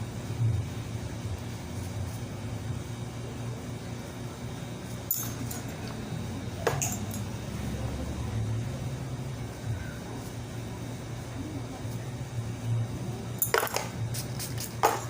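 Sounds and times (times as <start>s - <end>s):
steady low hum: 0.0s - 15.0s
clinks of small hard objects: 6.6s - 7.3s, 13.4s - 15.0s.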